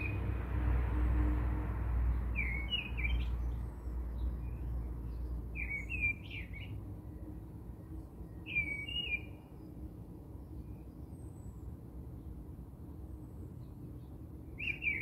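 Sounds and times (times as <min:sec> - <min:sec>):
bird chirping: 0:02.3 - 0:06.8, 0:08.3 - 0:09.8, 0:13.6 - 0:15.0.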